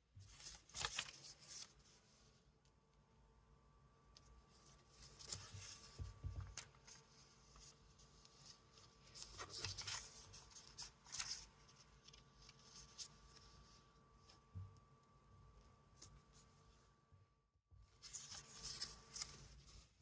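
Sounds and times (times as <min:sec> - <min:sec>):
paper rustling: 0:00.2 - 0:02.2, 0:04.5 - 0:14.4, 0:17.9 - 0:20.0.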